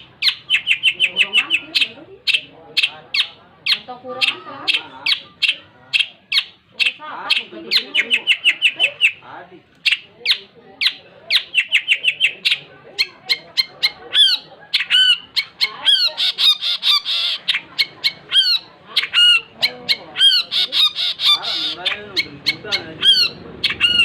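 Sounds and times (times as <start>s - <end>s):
shrike singing: 0.0s - 24.0s.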